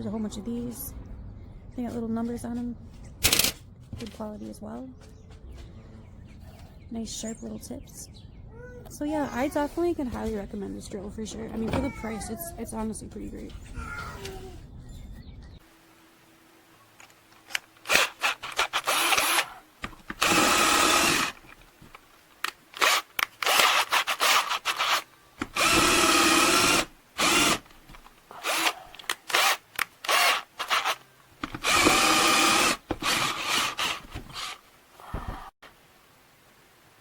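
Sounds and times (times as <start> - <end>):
cordless drill motor whining: 17.8 - 21.4, 22.8 - 27.7, 28.3 - 34.6.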